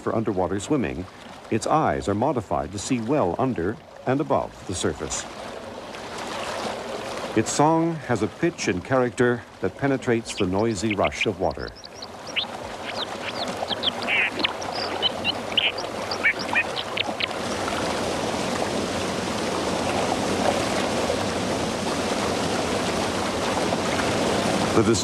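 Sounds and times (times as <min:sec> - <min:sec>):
fast water rushing: 0:00.0 - 0:25.0
bird chirps and whistles: 0:11.7 - 0:17.3.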